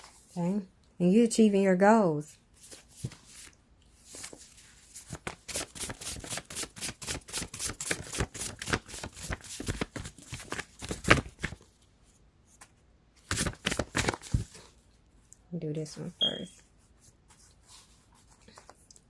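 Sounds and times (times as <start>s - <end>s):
cards being shuffled: 2.6s - 11.6s, 13.2s - 14.7s.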